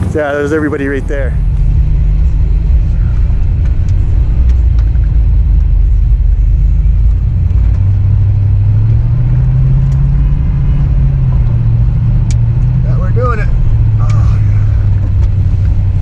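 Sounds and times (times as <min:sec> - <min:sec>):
pickup truck engine revving: 0:00.0 - 0:16.0.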